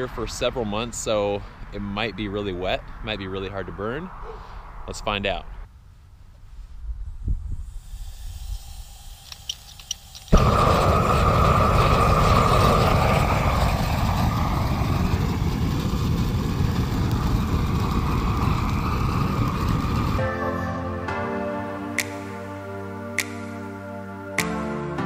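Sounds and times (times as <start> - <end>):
propane torch igniting with pop: 7.6 - 20.2
torch flame rushing hiss: 7.6 - 20.2.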